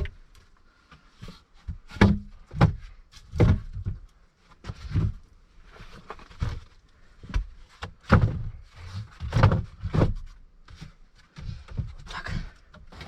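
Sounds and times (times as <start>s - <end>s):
knocks and thumps: 1.6s - 4.0s, 6.3s - 8.6s, 9.2s - 13.0s.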